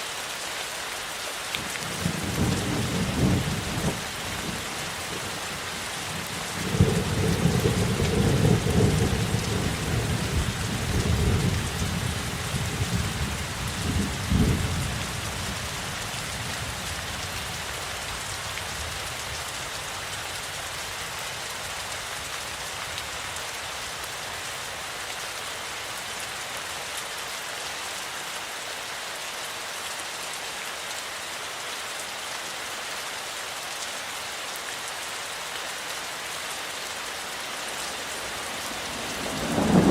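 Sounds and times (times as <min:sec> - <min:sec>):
steady rainfall: 0:00.0 - 0:39.9
thunder rumbling: 0:38.9 - 0:39.9.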